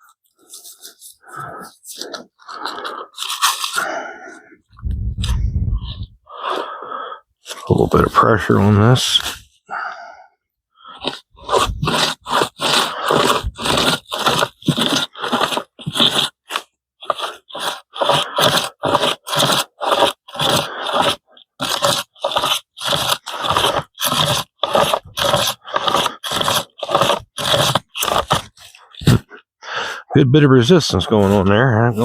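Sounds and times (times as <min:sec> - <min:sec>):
pocket chainsaw rasping strokes: 0:10.9 - 0:29.3, 0:30.8 - 0:32.0.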